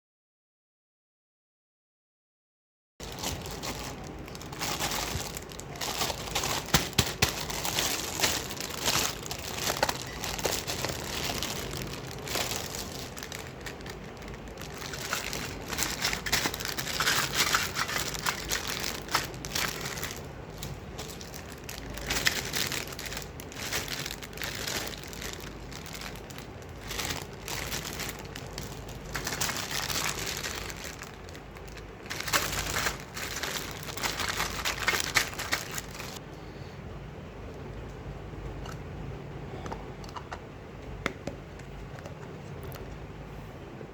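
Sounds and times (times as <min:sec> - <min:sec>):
plastic packaging crinkling: 0:03.0 - 0:36.2.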